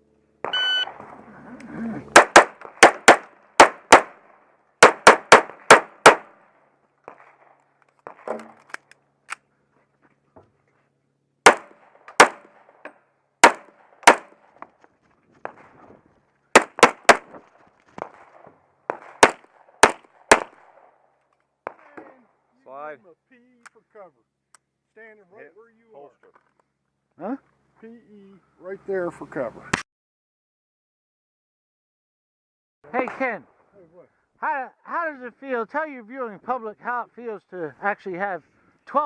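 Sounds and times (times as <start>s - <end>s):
pistol shots: 2.1s - 6.4s, 11.4s - 14.6s, 16.5s - 17.4s, 18.0s - 21.0s
faint gun handling sounds: 7.0s - 11.0s.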